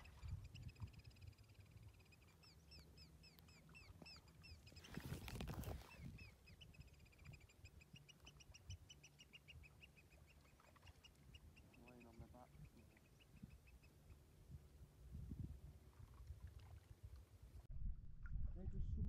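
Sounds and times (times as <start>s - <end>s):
water and wind wash: 0.0s - 1.4s, 12.4s - 19.0s
birds calling: 0.0s - 14.2s.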